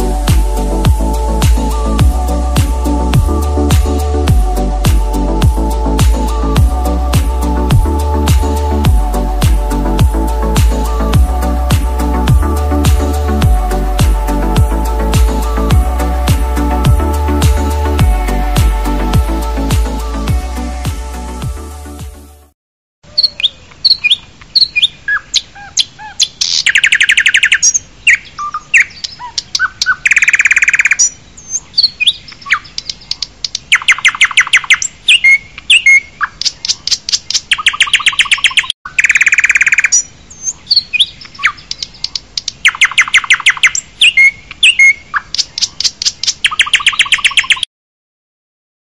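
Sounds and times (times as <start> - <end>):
bird chirps and whistles: 23.1 - 31.1, 33.7 - 36.1, 37.5 - 41.8, 42.6 - 45.7, 46.4 - 47.7
songbird trills: 23.1 - 47.7.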